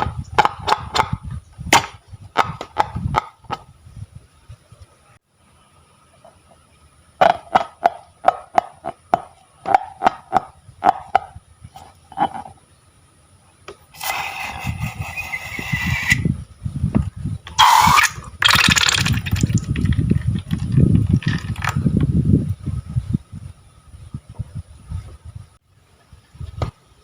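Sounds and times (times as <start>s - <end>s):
slime squelching and popping: 18.0s - 19.9s.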